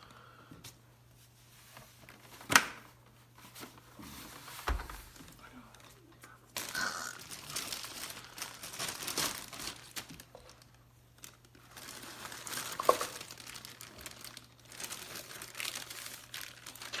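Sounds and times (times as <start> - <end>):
plastic wrapping crinkling: 3.4 - 17.0.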